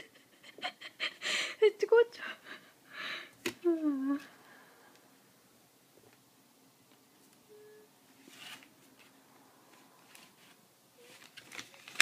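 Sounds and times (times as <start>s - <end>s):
faint rustles or scrapes: 8.1s - 12.0s.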